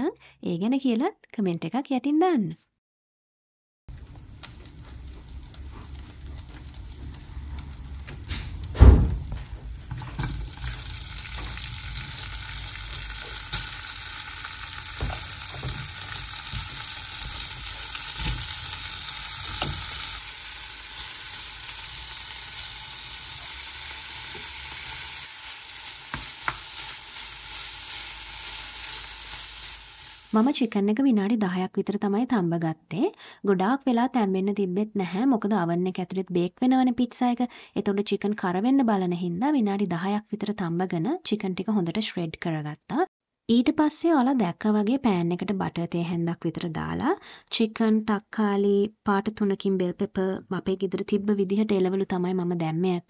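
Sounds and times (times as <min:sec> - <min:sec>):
food sizzling in a pan: 0:03.9 - 0:30.7.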